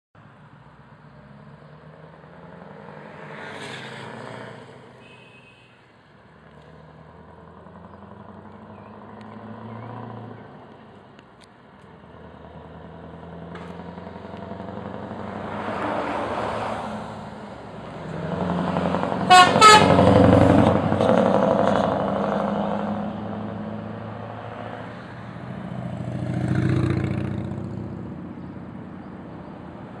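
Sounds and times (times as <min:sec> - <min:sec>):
truck horn blasts: 0:05.0 - 0:05.8, 0:19.2 - 0:20.8.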